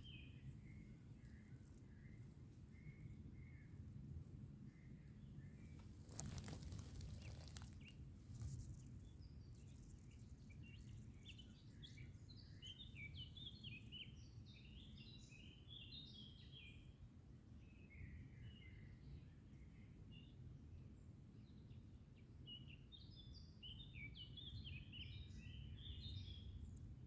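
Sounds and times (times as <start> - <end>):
brief crackle: 5.8 - 8.6.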